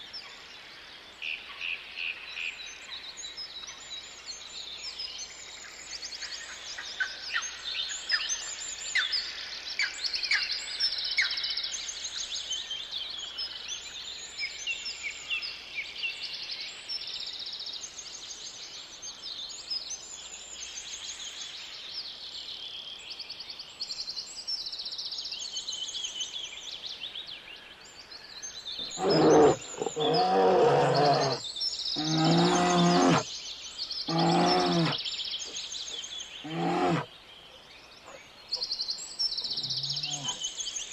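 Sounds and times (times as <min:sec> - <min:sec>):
small birds chirping: 0:28.6 - 0:40.9
large animal calling loudly: 0:28.8 - 0:31.4, 0:32.0 - 0:33.2, 0:34.1 - 0:35.0, 0:36.4 - 0:37.1.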